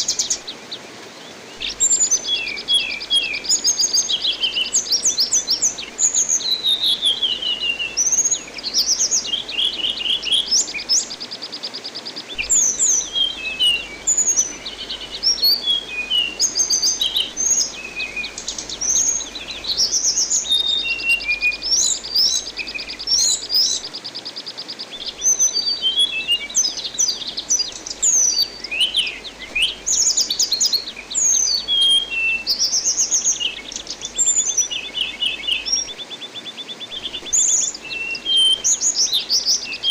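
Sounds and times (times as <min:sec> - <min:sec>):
running water hiss: 0:00.0 - 0:39.9
thrush singing: 0:12.4 - 0:23.7.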